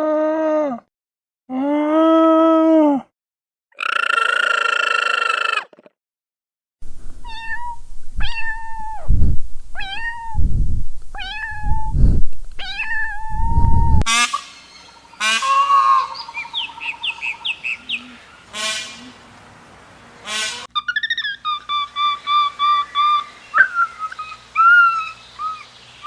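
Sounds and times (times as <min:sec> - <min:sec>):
low rumbling noise: 0:06.8 - 0:14.1
cat meowing: 0:07.2 - 0:09.0, 0:09.8 - 0:10.4, 0:11.2 - 0:11.9, 0:12.6 - 0:13.7.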